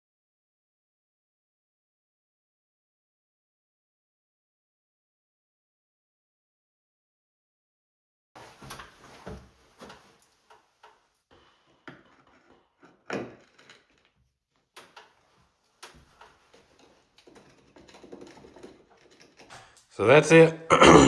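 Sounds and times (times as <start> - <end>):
taps and scrapes on tiles: 9.8 - 14.2, 15.8 - 19.9.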